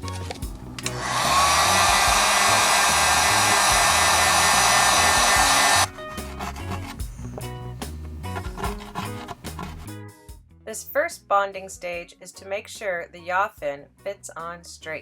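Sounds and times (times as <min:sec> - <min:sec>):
background music: 0:00.0 - 0:15.0
heat gun fan whine: 0:00.7 - 0:05.9.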